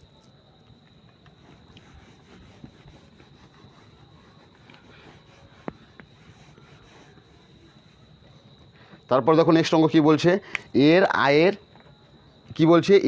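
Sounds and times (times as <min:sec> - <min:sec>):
faint high-pitched whine: 0:00.0 - 0:13.0
faint rubbing and handling: 0:01.3 - 0:09.0.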